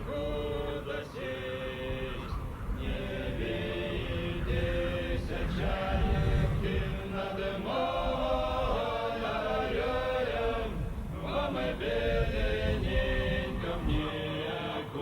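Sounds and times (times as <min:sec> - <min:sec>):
choral singing: 0:00.0 - 0:15.0.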